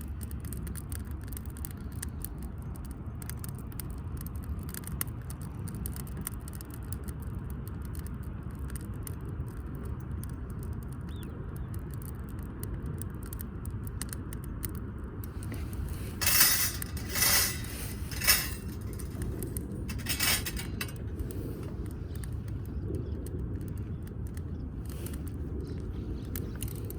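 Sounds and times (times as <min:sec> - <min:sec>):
metal clinking and jangling: 0:15.6 - 0:21.0.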